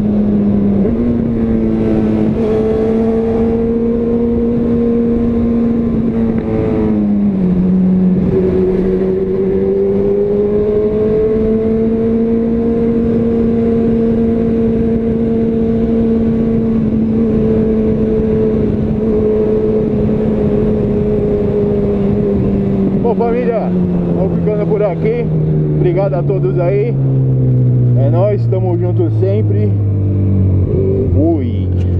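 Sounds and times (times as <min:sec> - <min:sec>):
motorcycle engine running: 0:00.0 - 0:31.9
wind noise: 0:00.0 - 0:31.9.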